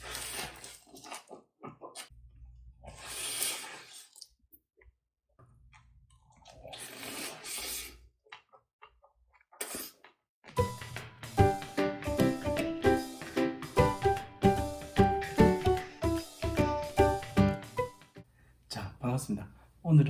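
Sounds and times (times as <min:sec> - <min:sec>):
close chewing: 0:00.0 - 0:02.1, 0:05.7 - 0:10.6.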